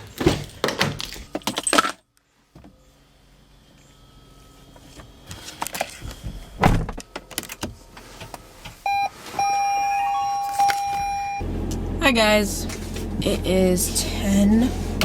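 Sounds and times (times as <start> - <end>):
solid thud: 6.6 - 7.0
steady electronic beep tone: 8.9 - 11.4.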